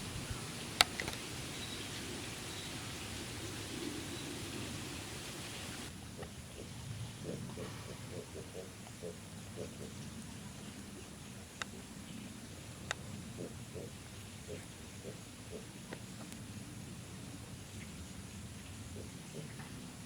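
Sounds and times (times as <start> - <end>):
steady hiss: 0.0 - 6.3
pig grunting: 5.8 - 10.0.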